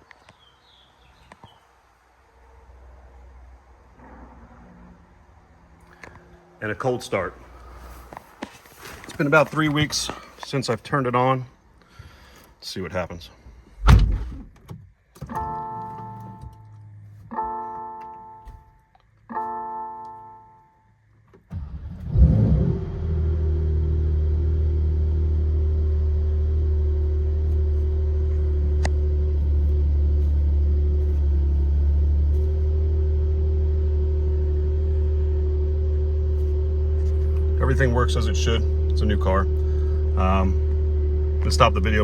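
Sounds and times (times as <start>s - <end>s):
constant whine: 12.6s - 22.2s, 22.8s - 42.0s
dashboard warning chimes: 15.3s - 20.9s
car engine cranking and starting: 21.2s - 42.0s
car engine idling: 21.2s - 42.0s.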